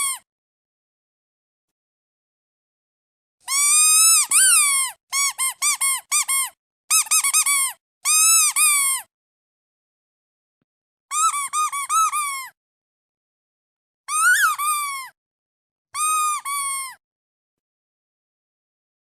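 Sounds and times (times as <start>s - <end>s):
squeaky duck toy squeaking: 0.0s - 0.2s, 3.5s - 9.1s, 11.1s - 12.6s, 14.1s - 15.1s, 16.0s - 17.0s.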